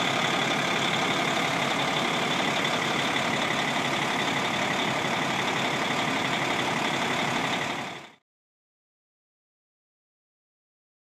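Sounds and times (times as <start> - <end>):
diesel truck engine idling: 0.0 - 8.2.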